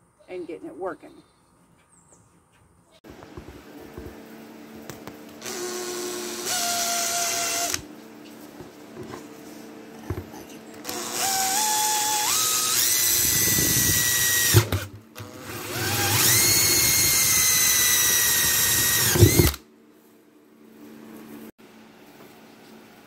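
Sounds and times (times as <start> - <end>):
power drill whining: 5.4 - 7.9, 10.8 - 19.6.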